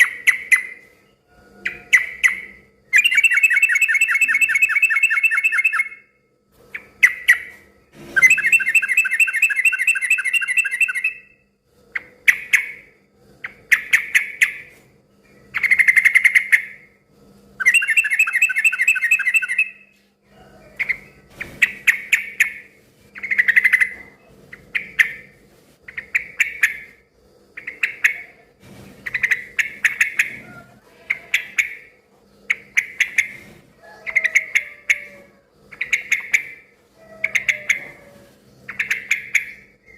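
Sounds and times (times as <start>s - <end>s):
bird chattering calls: 35.7s - 38.0s.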